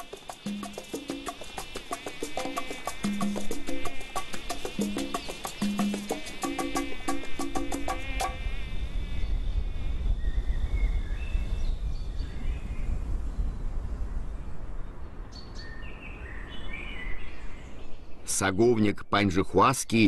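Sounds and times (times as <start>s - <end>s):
percussive music strikes: 0.0s - 8.1s
insect high whine: 0.0s - 10.5s.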